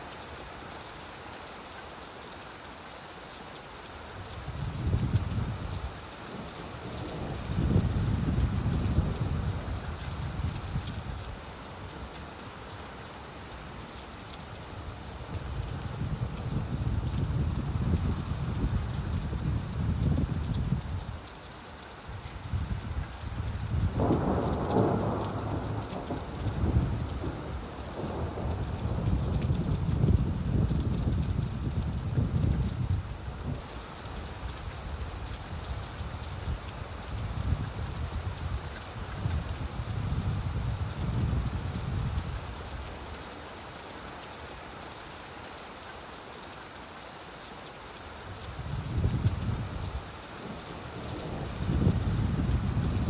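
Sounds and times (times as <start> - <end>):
steady rain: 0.0 - 53.0
thunder rumbling: 23.8 - 33.6, 48.7 - 53.0.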